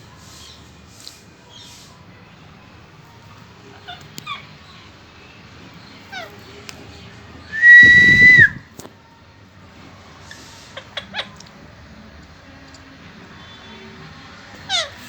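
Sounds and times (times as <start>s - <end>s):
parrot whistle dropping in pitch: 7.6s - 8.6s.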